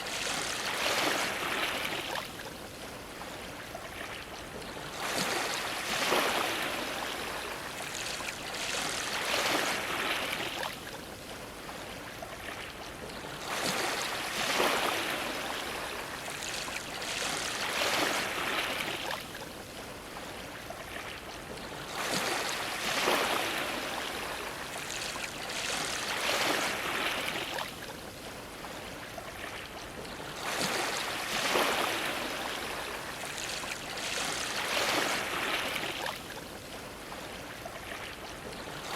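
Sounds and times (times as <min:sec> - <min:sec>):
waves splashing against dock: 0:21.6 - 0:38.9.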